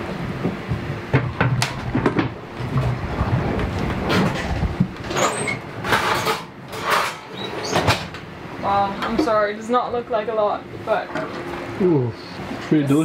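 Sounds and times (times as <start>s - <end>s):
sharp knocks and clatters: 0.4s - 8.3s.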